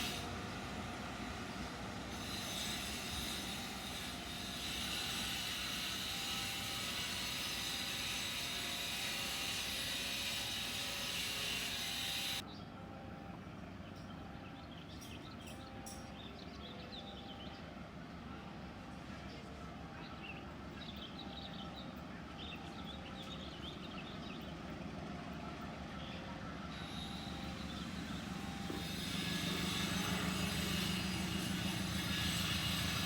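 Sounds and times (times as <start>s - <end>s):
train wheels rumbling on rails: 0.0s - 12.4s, 20.7s - 33.0s.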